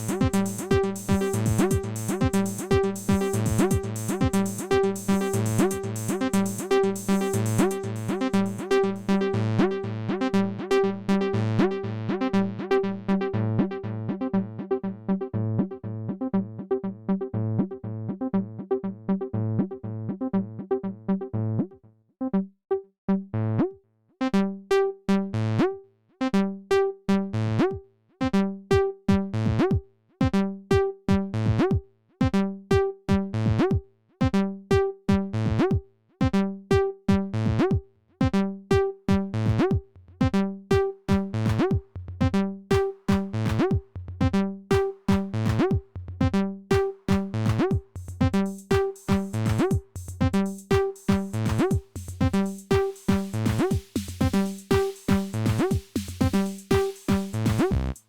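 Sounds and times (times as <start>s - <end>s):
drum machine hits: 0.0s - 7.9s, 46.7s - 58.0s
synth bass notes: 0.0s - 22.4s, 39.1s - 39.7s, 40.3s - 58.0s.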